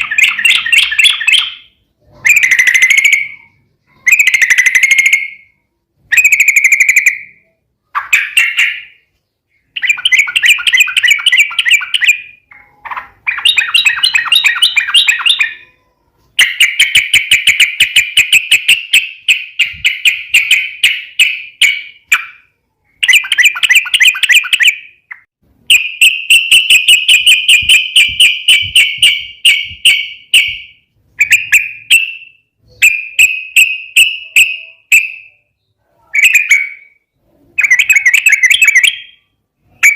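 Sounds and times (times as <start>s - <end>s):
bulbul chattering song: 0.0s - 39.9s.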